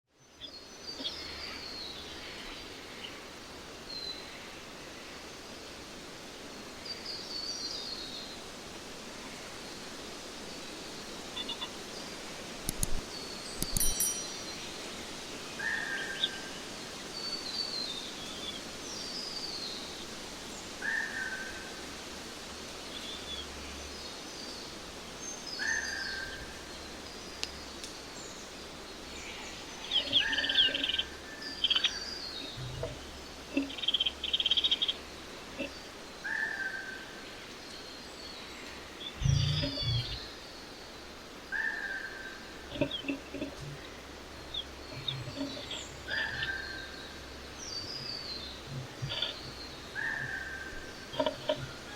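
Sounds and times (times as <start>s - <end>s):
small birds chirping: 10.5s - 21.4s, 22.6s - 51.9s
sharp clicks: 12.6s - 13.0s, 13.6s - 14.0s.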